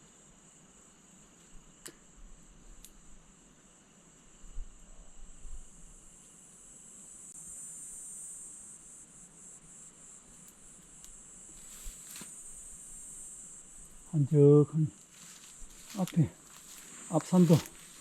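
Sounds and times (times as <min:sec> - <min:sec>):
high-pitched insect chorus: 0:00.0 - 0:18.0
faint click: 0:01.8 - 0:02.0, 0:02.8 - 0:03.0, 0:10.4 - 0:11.2.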